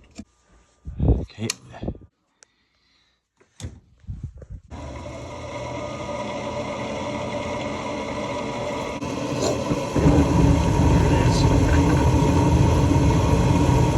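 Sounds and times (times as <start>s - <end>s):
furnace blower motor humming: 4.7s - 13.9s.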